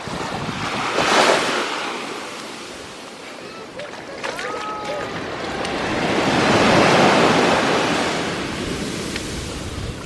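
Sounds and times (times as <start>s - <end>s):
sea waves washing on shore: 0.0s - 10.0s.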